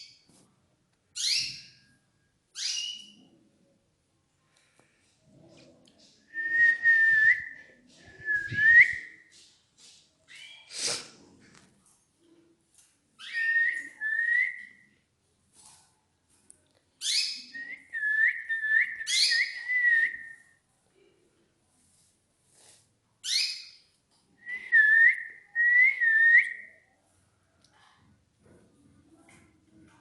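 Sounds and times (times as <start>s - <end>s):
canary singing: 1.2s - 1.9s, 2.5s - 3.3s, 17.0s - 20.3s.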